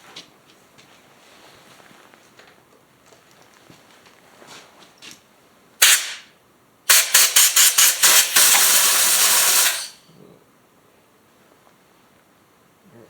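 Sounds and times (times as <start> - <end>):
compressed air blow gun blasting: 5.8 - 6.3, 6.9 - 10.0.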